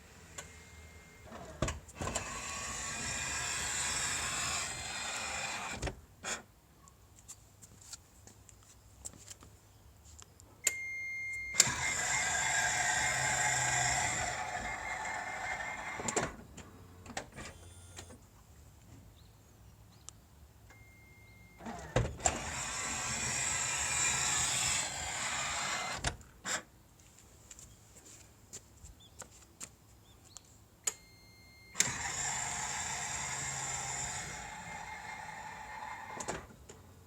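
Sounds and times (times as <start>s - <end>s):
sliding door motor running: 0.2s - 5.9s, 11.6s - 16.3s, 21.6s - 26.1s, 31.8s - 36.5s
warning beep: 10.7s - 11.6s, 20.8s - 21.6s, 30.9s - 31.8s.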